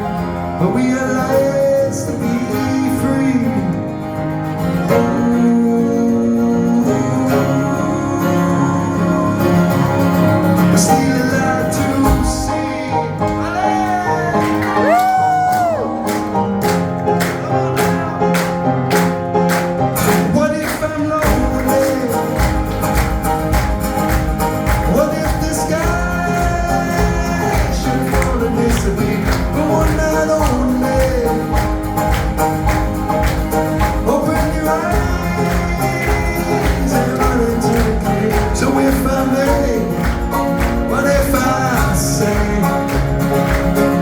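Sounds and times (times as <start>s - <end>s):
live band playing: 0.0s - 44.0s
sliding lead melody: 0.0s - 44.0s
steady percussive beat: 15.6s - 44.0s.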